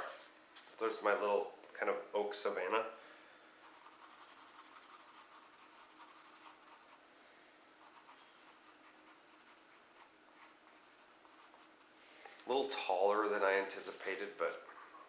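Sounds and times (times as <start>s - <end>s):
pencil scratching on paper: 3.6s - 7.0s, 7.8s - 11.9s.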